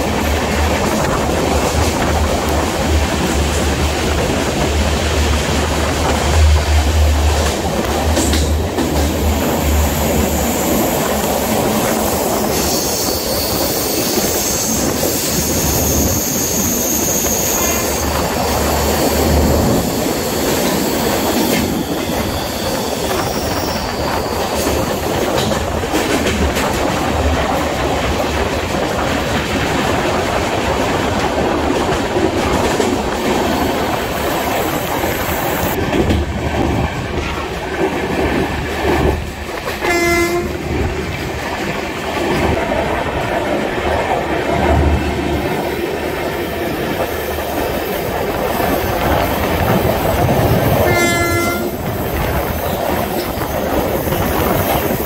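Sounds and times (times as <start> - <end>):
train wheels rumbling on track: 0.0 - 55.0
high wheel squeal: 12.0 - 25.0.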